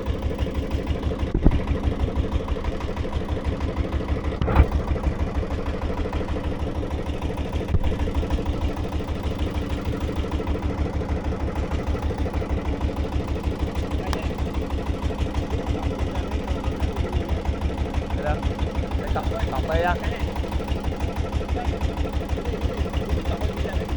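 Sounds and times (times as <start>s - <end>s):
engine chugging at low speed: 0.0s - 23.9s.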